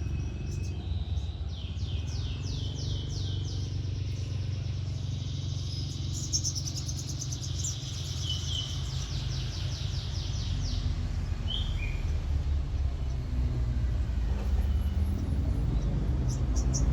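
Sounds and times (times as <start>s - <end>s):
bird chirps: 0.0s - 12.2s
sunbird singing: 0.0s - 13.3s, 15.4s - 16.9s.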